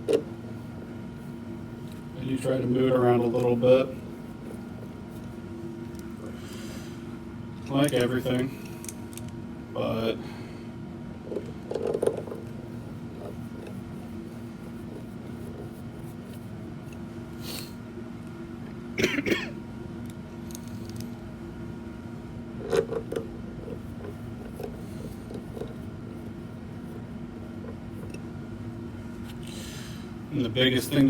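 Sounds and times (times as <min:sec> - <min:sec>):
heater humming: 0:00.0 - 0:31.0
person clearing throat: 0:19.0 - 0:19.6.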